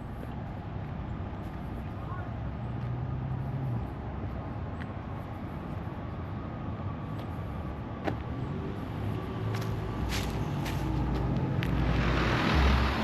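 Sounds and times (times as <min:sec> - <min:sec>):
road traffic noise: 0:00.0 - 0:13.0
car engine humming: 0:08.1 - 0:13.0.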